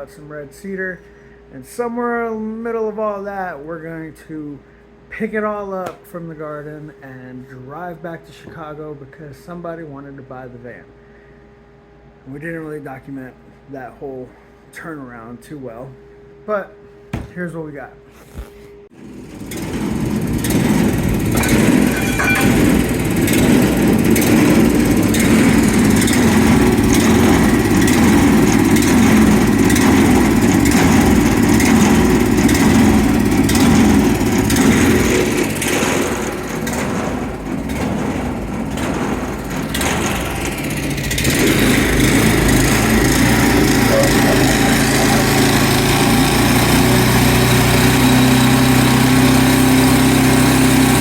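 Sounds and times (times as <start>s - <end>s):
small engine running: 19.0s - 51.0s.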